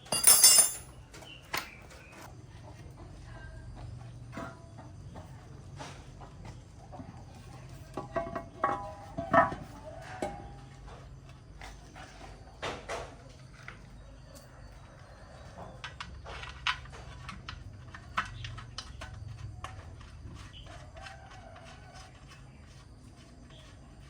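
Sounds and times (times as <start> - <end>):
tools and parts clicking: 0.0 - 1.7.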